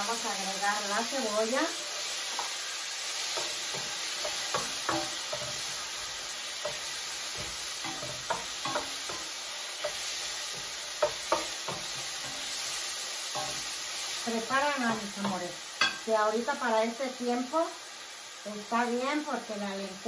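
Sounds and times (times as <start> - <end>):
vegetables sizzling in oil: 0.0 - 20.0
metal spoon clinking and scraping pan: 3.2 - 12.7, 13.3 - 13.7, 14.9 - 16.1.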